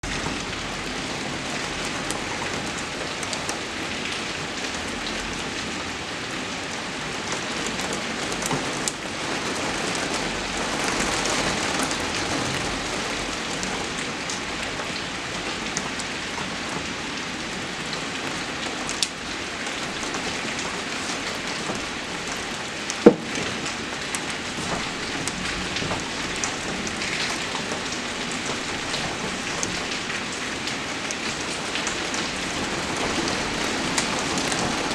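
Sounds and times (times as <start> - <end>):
steady rainfall: 0.0 - 34.9
drops ticking on a surface: 23.0 - 23.7
sharp loud knock: 23.1 - 23.6.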